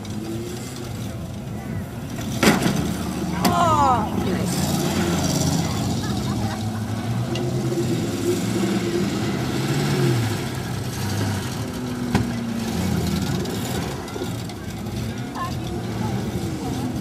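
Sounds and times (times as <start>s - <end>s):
car engines revving: 0.0s - 17.0s
cars colliding bang: 2.2s - 3.6s.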